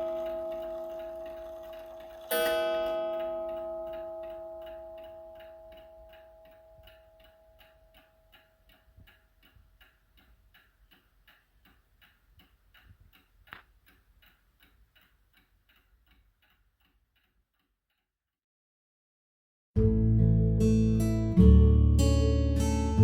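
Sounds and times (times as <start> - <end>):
sharp click: 0.0 - 17.7
clock ticking: 0.0 - 17.9.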